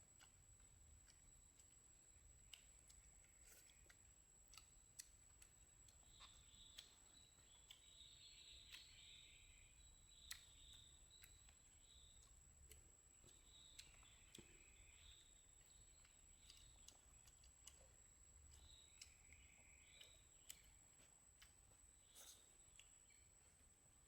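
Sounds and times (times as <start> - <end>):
faint high chirping: 1.0 - 23.8
faint clicks: 2.4 - 9.3, 10.1 - 14.7, 15.6 - 21.6.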